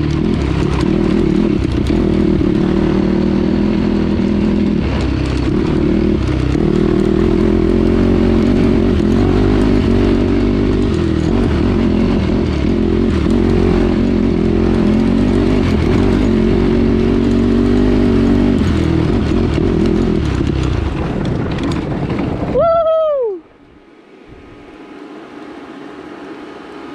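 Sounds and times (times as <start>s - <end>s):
quad engine revving: 0.0s - 22.6s.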